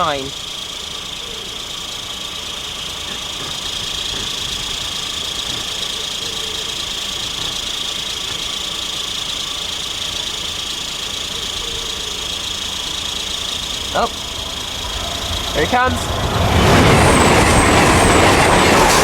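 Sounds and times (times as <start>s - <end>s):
engine noise: 0.0s - 19.0s
high hiss: 0.0s - 19.0s.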